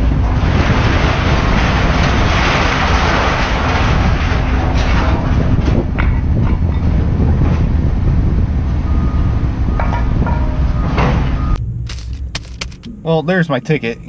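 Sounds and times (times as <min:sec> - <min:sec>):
sharp metallic clanks: 0:09.8 - 0:13.1.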